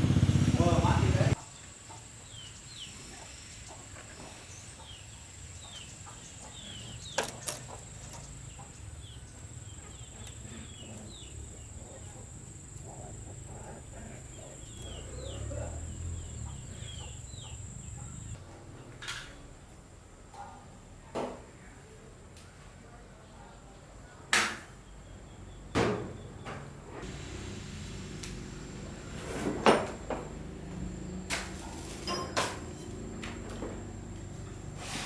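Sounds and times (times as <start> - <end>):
birds chirping: 0.0 - 18.4, 29.8 - 34.8.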